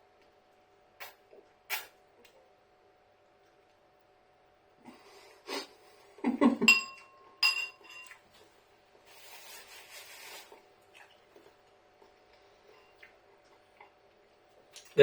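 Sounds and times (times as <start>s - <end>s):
cutlery clinking against a dish: 6.7s - 8.2s.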